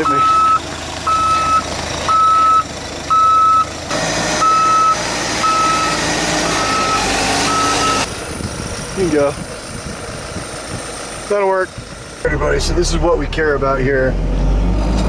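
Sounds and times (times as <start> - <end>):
reversing alarm beeping: 0.0 - 3.7, 4.4 - 8.1
snowcat engine running: 0.0 - 14.8.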